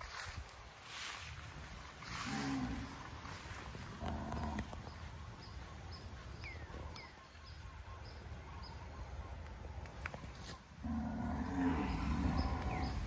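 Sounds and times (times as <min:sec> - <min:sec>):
birds peeping: 0:00.0 - 0:13.0.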